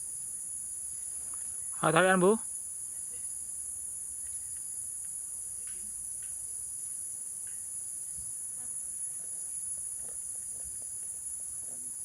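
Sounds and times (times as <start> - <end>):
insects chirping: 0.0 - 12.0
faint ticks: 4.2 - 6.4.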